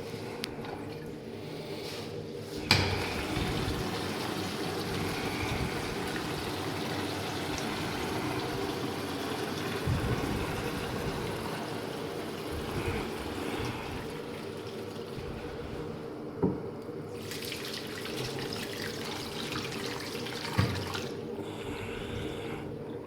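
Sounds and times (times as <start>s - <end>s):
water running from a tap: 3.0s - 15.5s, 17.2s - 21.2s.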